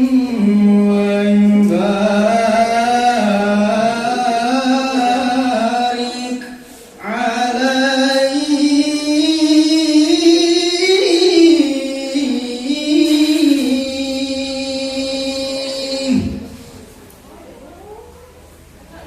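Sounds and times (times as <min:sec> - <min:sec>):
person chanting devotional verse: 0:00.0 - 0:16.9.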